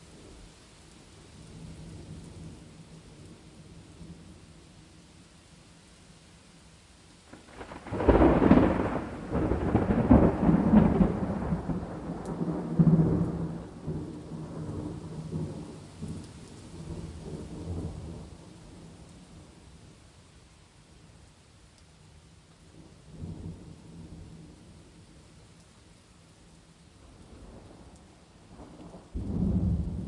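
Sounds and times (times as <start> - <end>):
rain hissing: 0.0 - 30.0
thunder rumbling: 7.3 - 19.5, 28.5 - 30.0.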